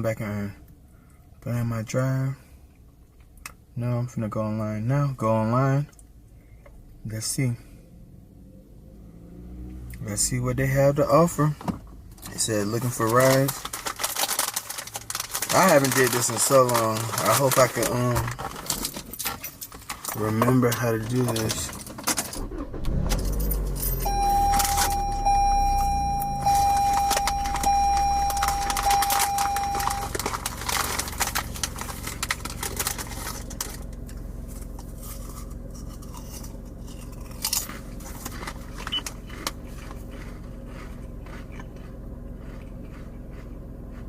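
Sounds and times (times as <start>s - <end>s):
low hum: 22.4s - 44.0s
steady electronic tone: 23.9s - 30.2s.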